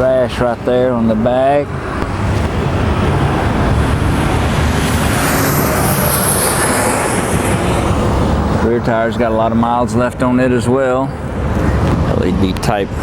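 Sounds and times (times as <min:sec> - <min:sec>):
traffic rumble: 0:00.0 - 0:13.0
faint high whine falling in pitch: 0:04.1 - 0:08.0.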